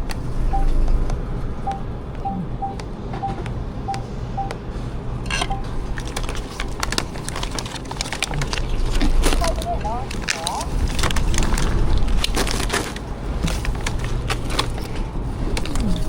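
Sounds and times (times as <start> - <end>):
keypad beeps: 0.4 - 0.9, 1.6 - 4.6, 5.3 - 5.7.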